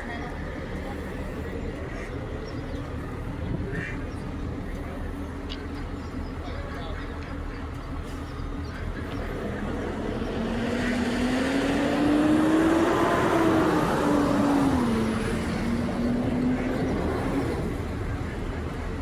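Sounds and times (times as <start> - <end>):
motor vehicle passing: 8.8 - 18.8.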